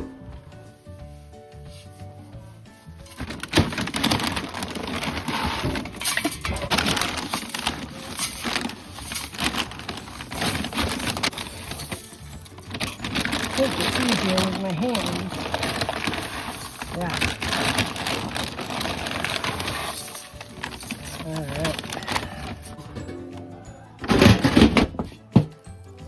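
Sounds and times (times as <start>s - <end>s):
rustling and scraping handling noise: 0.0s - 25.6s
soft music with held notes: 0.0s - 26.0s.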